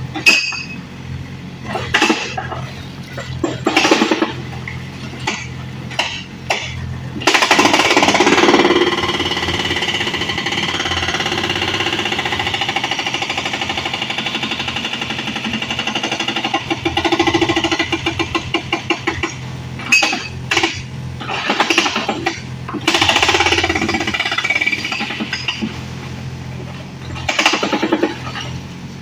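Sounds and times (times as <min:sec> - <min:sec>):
hydraulic breaker hammering: 0:00.1 - 0:00.8, 0:03.2 - 0:25.9, 0:27.0 - 0:28.6.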